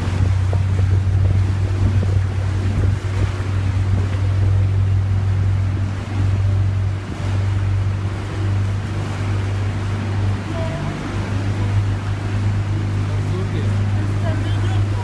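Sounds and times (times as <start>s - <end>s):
wind noise: 0.0s - 9.1s
boat engine humming: 0.0s - 15.0s
rushing water: 0.0s - 15.0s.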